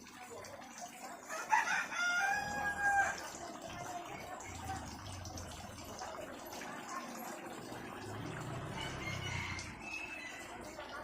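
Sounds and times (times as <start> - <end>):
farmyard background: 0.4 - 5.4, 7.7 - 11.0
rooster crowing: 1.3 - 3.2, 8.7 - 10.5.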